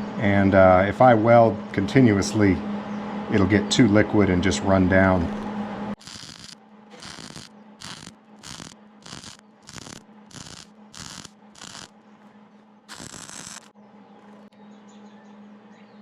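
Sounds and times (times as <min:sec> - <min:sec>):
steady low hum: 0:00.0 - 0:16.0
welding arc crackling: 0:06.0 - 0:11.9, 0:12.9 - 0:13.7.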